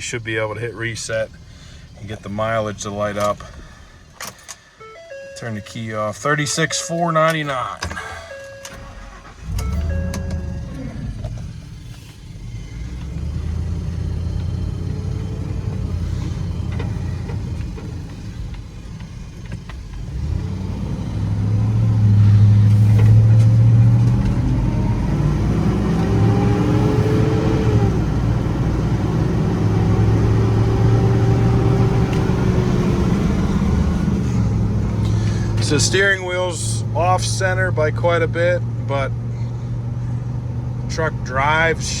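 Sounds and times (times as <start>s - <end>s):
truck engine accelerating: 0.0s - 4.5s, 8.2s - 42.0s.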